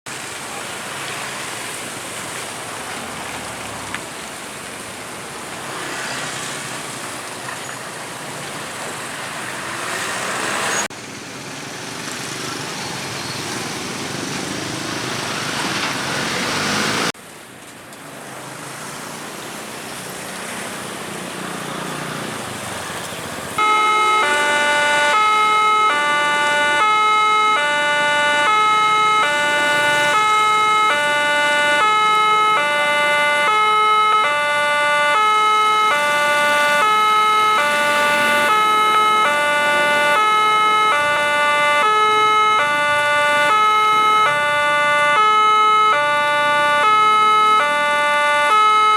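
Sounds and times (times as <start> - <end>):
road traffic noise: 0.1 - 48.9
level crossing two-tone alarm: 23.6 - 48.9.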